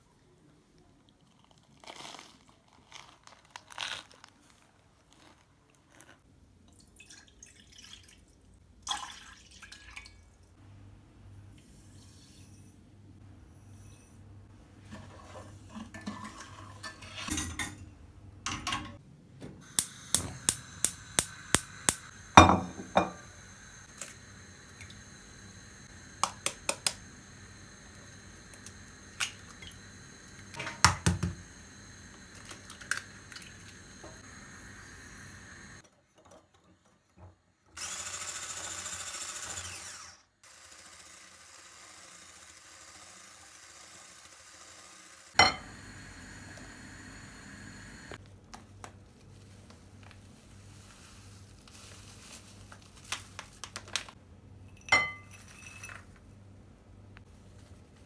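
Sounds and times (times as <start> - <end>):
hiss: 19.6 - 35.8, 45.6 - 48.2.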